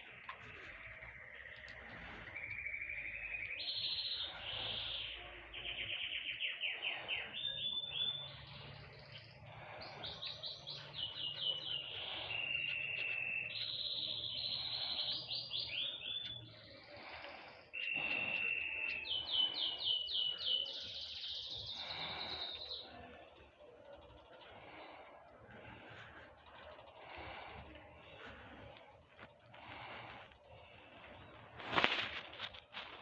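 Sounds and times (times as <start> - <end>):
songbird singing trills and whistles: 0.0 - 23.3.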